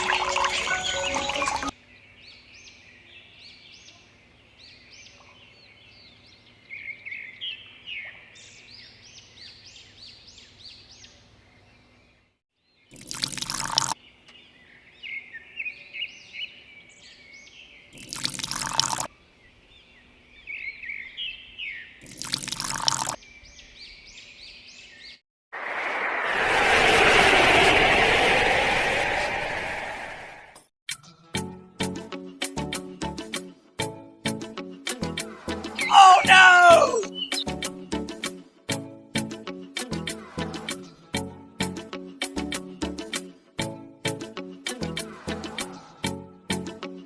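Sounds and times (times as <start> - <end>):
small birds chirping: 0.5 - 13.1, 13.8 - 25.2, 35.8 - 37.6
bursts of rushing noise: 25.5 - 30.7.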